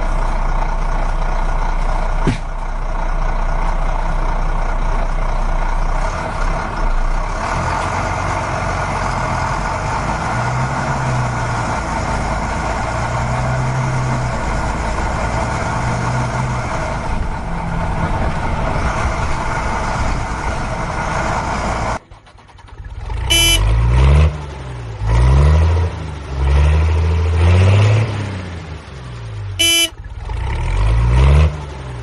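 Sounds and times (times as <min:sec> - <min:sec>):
vehicle engine running: 0:00.0 - 0:07.6, 0:16.7 - 0:23.8, 0:29.4 - 0:30.6.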